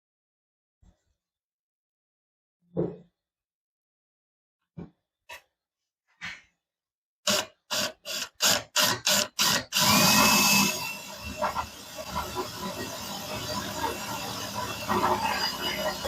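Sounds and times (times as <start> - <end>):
handheld power tool running: 7.3 - 16.0.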